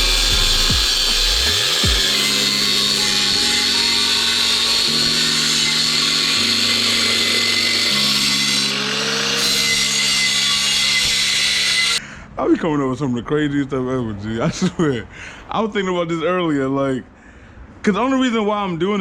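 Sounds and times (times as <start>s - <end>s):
hip-hop music with deep bass: 0.0s - 2.1s
power tool grinding: 0.0s - 12.0s.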